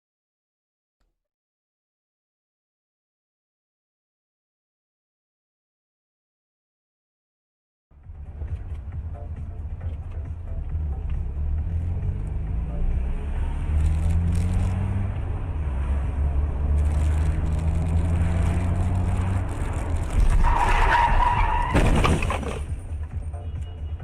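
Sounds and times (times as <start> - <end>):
car engine accelerating: 8.0 - 21.7
tyres skidding and squealing: 10.8 - 23.8.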